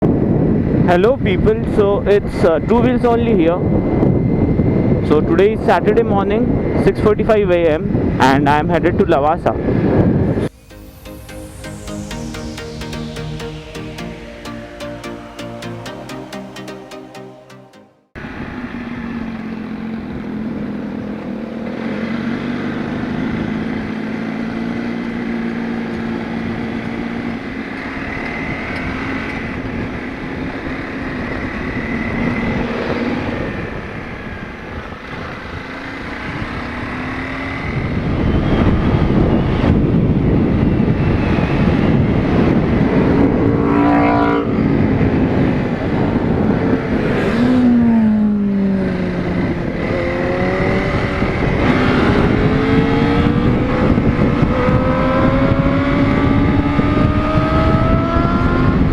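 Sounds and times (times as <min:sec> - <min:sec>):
wind noise on microphone: 0:37.8 - 0:58.9.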